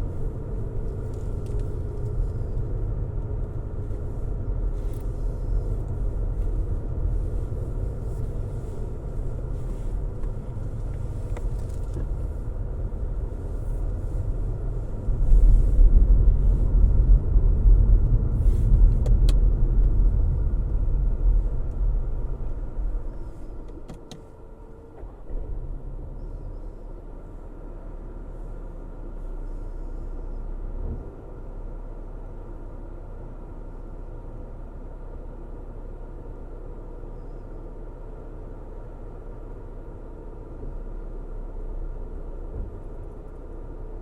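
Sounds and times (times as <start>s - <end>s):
car engine hum and road rumble: 0.0s - 44.0s.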